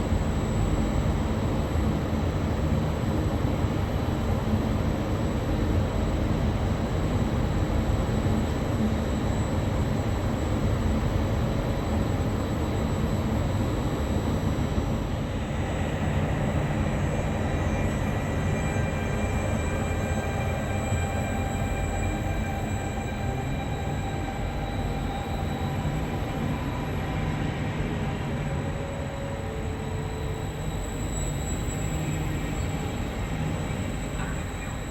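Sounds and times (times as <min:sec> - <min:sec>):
train rumbling slowly: 0:15.2 - 0:34.9
thin high steady tones: 0:15.5 - 0:34.9.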